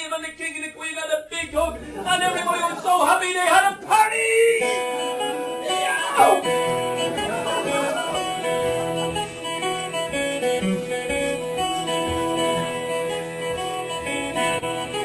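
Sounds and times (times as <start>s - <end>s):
plucked guitar instrumental: 3.8s - 15.0s.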